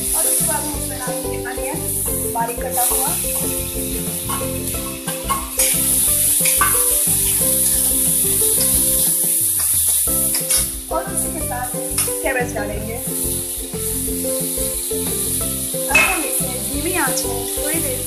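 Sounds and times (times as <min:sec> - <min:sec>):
spoon stirring: 0:00.0 - 0:12.2
onion sizzling in hot oil: 0:00.0 - 0:18.0
spoon clinking against pan: 0:06.4 - 0:07.1, 0:15.9 - 0:16.4.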